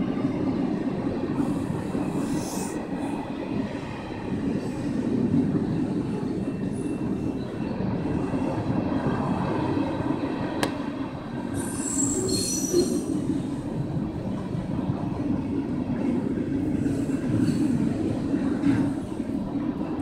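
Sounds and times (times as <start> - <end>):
train wheels rumbling on rails: 0.0 - 20.0
high-pitched wheel squeal: 11.6 - 13.1.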